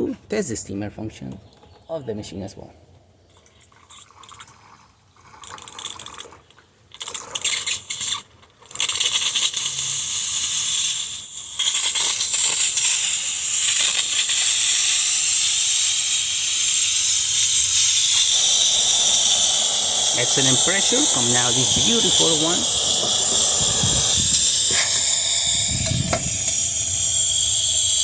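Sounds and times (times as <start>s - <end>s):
espresso machine steam wand hissing: 8.8s - 28.0s.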